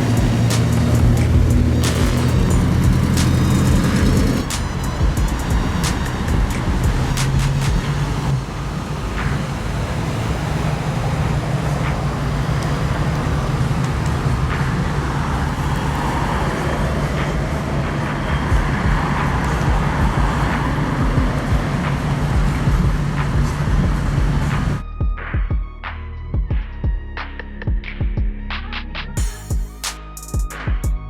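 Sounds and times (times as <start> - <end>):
car engines humming in traffic: 0.0 - 24.8.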